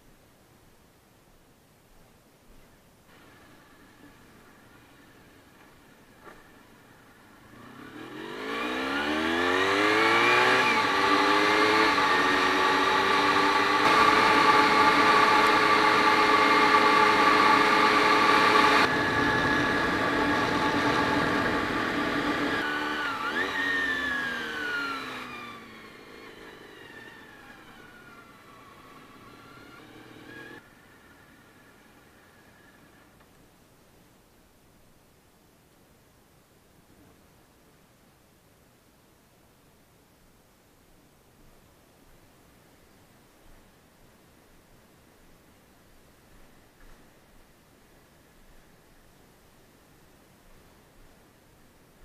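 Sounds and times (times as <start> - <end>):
motorcycle engine accelerating: 3.2 - 33.1.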